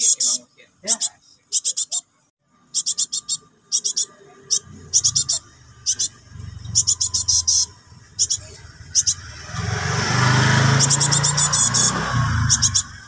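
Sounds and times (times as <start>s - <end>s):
fledgling bird begging calls: 2.7s - 9.4s, 10.6s - 13.0s
passing vehicle engine: 4.1s - 13.0s.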